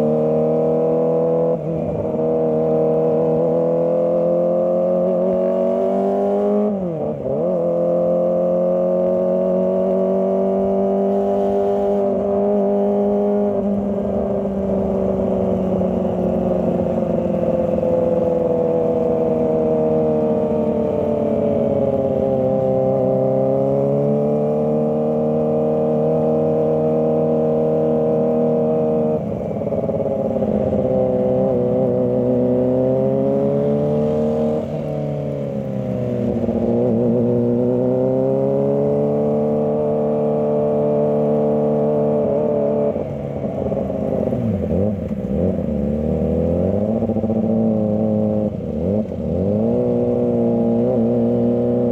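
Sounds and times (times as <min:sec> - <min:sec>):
motorcycle engine revving high: 0:00.0 - 0:51.9.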